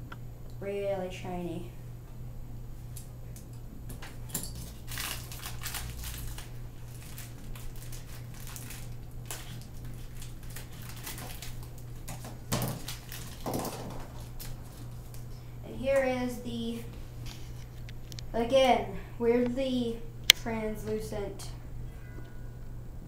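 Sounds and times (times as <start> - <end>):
steady low hum: 0.0 - 23.0
plastic packaging crinkling: 3.9 - 15.4.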